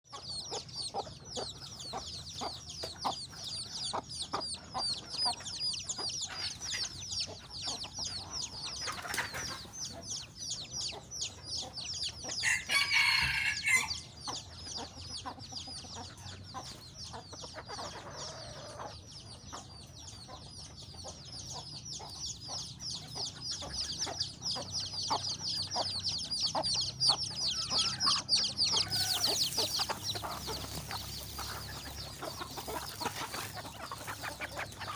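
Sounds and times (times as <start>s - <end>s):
chickens clucking: 0.1s - 34.9s
chicks peeping: 0.1s - 34.9s
chicken drawn-out call: 12.4s - 14.1s, 27.1s - 34.9s.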